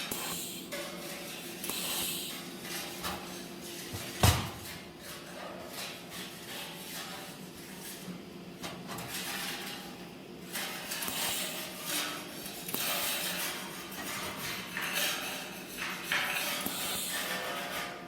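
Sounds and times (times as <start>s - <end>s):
hissing noise: 0.0s - 0.7s, 1.6s - 2.5s, 11.1s - 11.6s, 16.6s - 17.3s
metal parts clattering and scraping: 8.8s - 18.0s.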